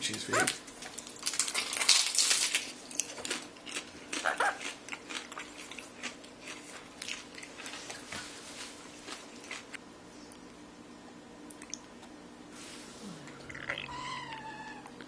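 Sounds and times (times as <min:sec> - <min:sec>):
parrot harsh call: 0:04.2 - 0:04.6.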